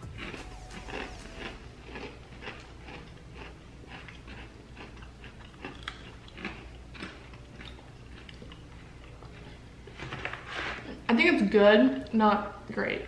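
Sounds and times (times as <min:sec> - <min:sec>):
crunchy snack chewing: 0:00.0 - 0:09.6.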